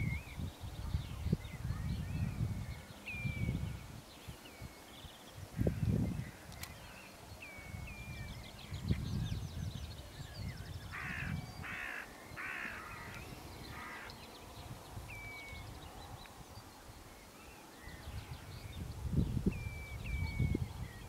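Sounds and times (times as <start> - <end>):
thin whistled bird notes: 6.2 - 10.9, 15.1 - 18.9, 19.5 - 21.0
harsh rasping bird calls: 10.8 - 14.4.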